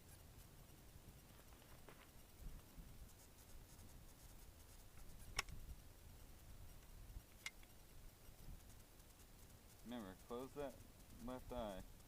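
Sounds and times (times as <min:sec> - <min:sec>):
sharp click: 0:05.0 - 0:05.6, 0:06.8 - 0:07.8.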